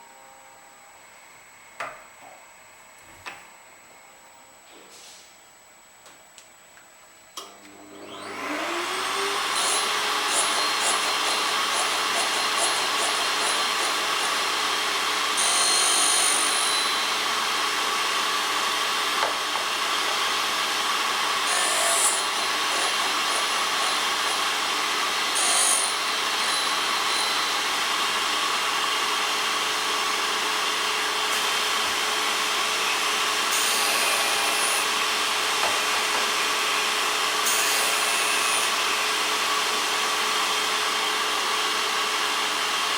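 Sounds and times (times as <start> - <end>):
grinding machine motor humming: 7.7 - 33.5
grinding wheel rasping on drill bit: 8.1 - 17.6, 21.4 - 28.3.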